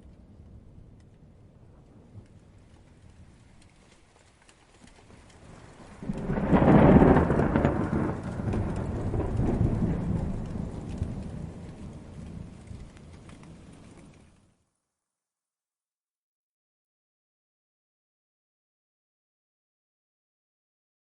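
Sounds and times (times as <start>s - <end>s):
light rain falling: 0.0s - 14.8s
distant thunder rolling: 5.3s - 14.2s.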